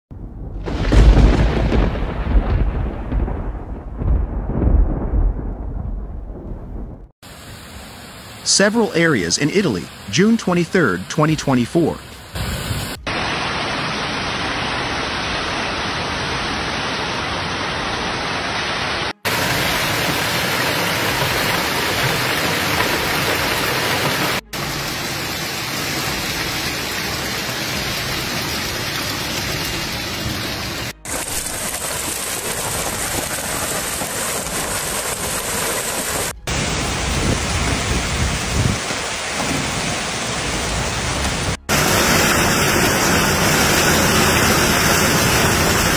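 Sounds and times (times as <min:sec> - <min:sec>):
low rumbles: 0:00.1 - 0:07.1
heavy rain pouring: 0:00.6 - 0:06.4, 0:07.0 - 0:45.9.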